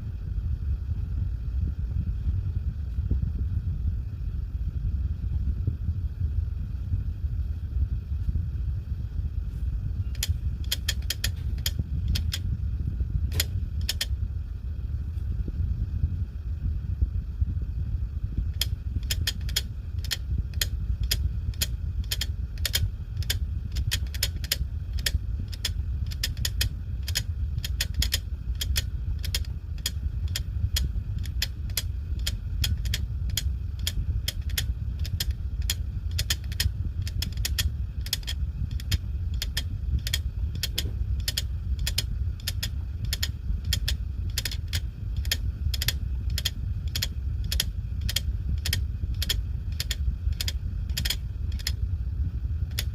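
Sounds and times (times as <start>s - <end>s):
steady low hum: 0.0s - 52.9s
hard disk drive clicking: 10.1s - 12.5s, 13.3s - 14.2s, 18.5s - 51.9s, 52.6s - 52.9s.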